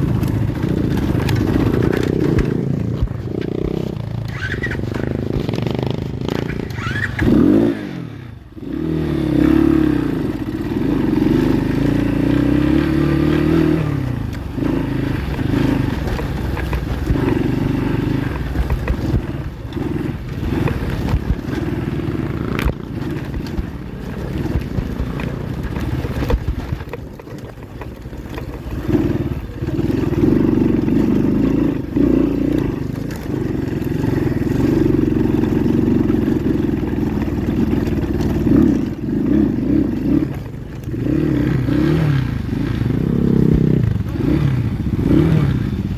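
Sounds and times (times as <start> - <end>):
motorbike engine revving: 0.0 - 45.9.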